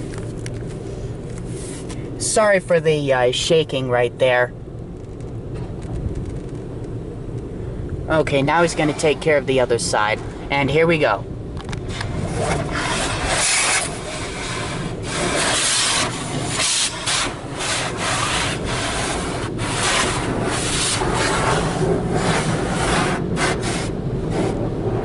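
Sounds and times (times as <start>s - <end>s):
brush rubbing car body: 1.4s - 1.9s, 11.9s - 24.6s.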